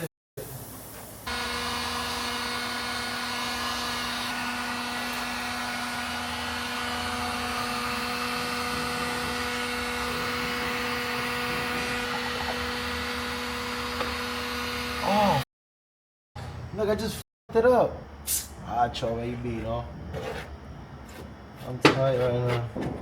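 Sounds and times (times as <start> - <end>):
machine motor hum and whine: 1.3 - 15.4.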